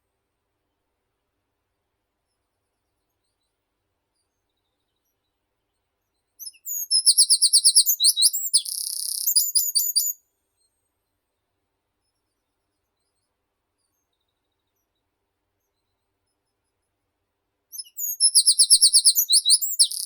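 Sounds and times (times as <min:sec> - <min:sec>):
songbird singing: 0:06.4 - 0:10.2, 0:17.7 - 0:20.0.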